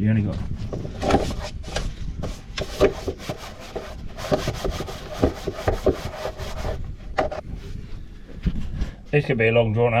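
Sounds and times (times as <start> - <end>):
scraping and knocking on metal: 0.6 - 7.5.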